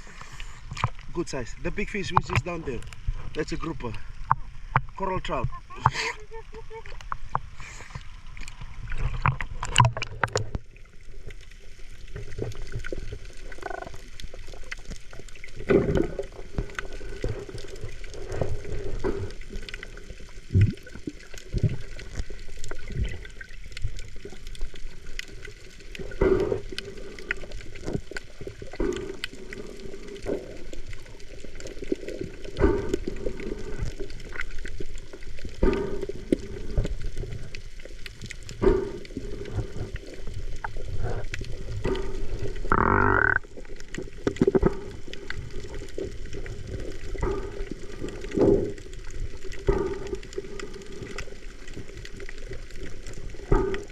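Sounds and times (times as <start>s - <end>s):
muffled water sloshing and bubbling: 0.0s - 53.9s
underwater knocks: 41.8s - 43.6s.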